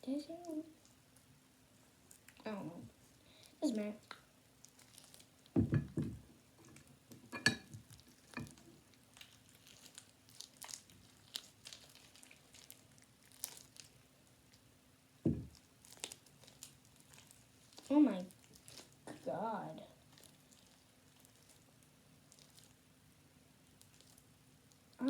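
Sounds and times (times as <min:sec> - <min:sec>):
slime squelching: 0:03.4 - 0:05.8, 0:08.0 - 0:14.6, 0:15.3 - 0:22.8
louder knocks: 0:05.6 - 0:06.2, 0:15.3 - 0:15.5.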